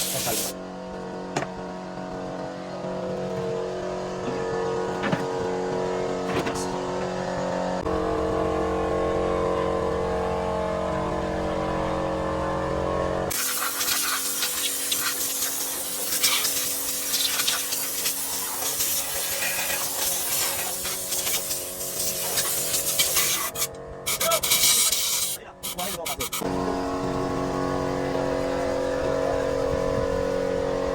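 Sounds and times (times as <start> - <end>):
loud hissing: 0.0 - 0.6, 13.3 - 26.4
diesel engine running: 0.0 - 30.9
knocks and clatter: 3.1 - 7.2.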